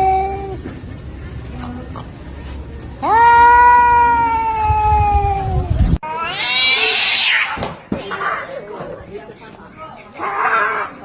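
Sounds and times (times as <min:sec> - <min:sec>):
cat yowling: 0:03.0 - 0:07.6.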